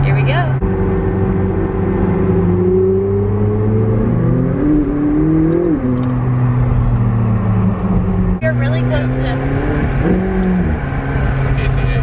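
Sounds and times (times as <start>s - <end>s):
car engine from inside cabin: 0.0s - 12.0s.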